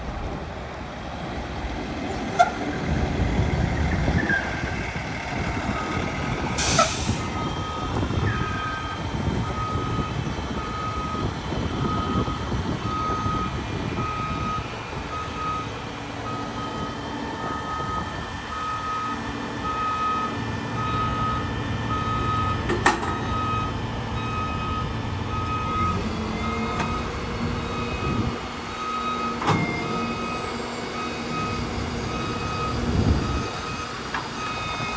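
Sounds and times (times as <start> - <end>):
diesel truck engine running: 0.0 - 34.9
backup alarm beeping: 5.7 - 15.7, 16.3 - 34.9
air release hiss: 6.6 - 7.3.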